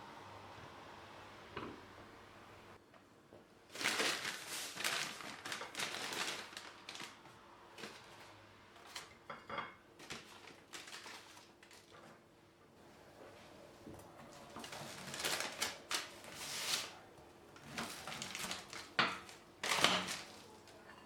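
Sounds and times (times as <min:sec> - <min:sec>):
dishes and cutlery clattering: 0:08.9 - 0:09.8, 0:17.8 - 0:21.0.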